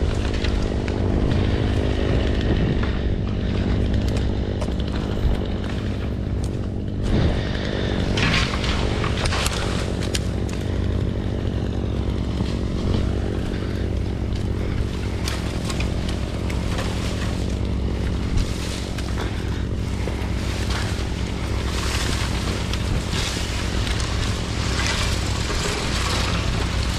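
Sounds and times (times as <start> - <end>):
engine running steadily: 0.0 - 26.9
clanks and scrapes: 8.0 - 10.2.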